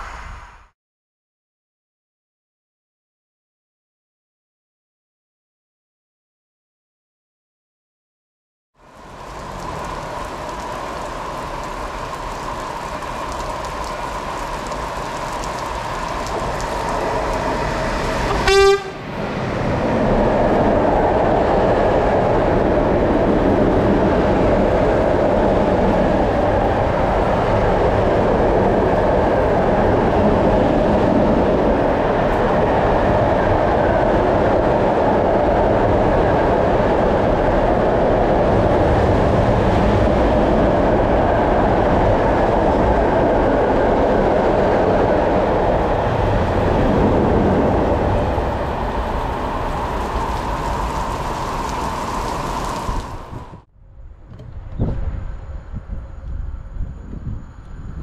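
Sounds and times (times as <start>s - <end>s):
train running past: 8.8s - 58.0s
train horn blast: 18.2s - 19.1s.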